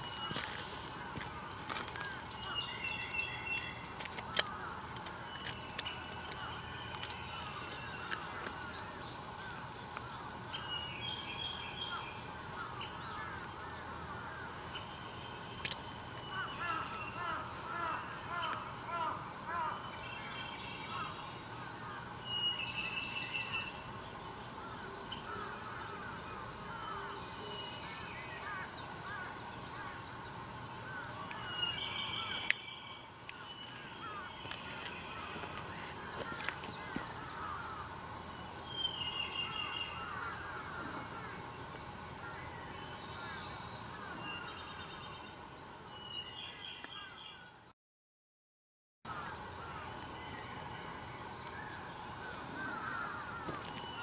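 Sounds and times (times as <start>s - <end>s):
birds chirping chorus: 0.0s - 47.7s, 49.1s - 54.0s
harsh bird cawing: 16.2s - 19.9s, 30.9s - 38.0s, 39.4s - 41.5s, 52.2s - 54.0s.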